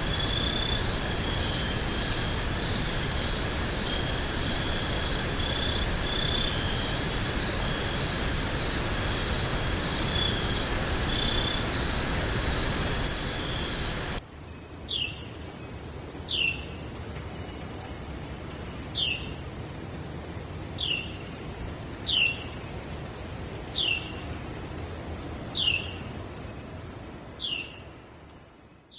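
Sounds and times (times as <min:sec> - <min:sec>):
insects trilling: 0:00.0 - 0:14.2
steady rushing background: 0:00.0 - 0:14.2.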